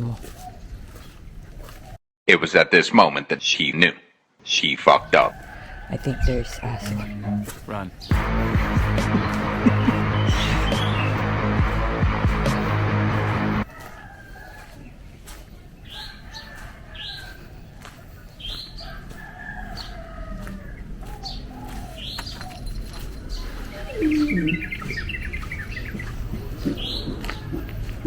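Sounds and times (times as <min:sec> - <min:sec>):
birds chirping: 0:04.4 - 0:28.0
low falling bird call: 0:08.0 - 0:14.5, 0:18.5 - 0:28.0.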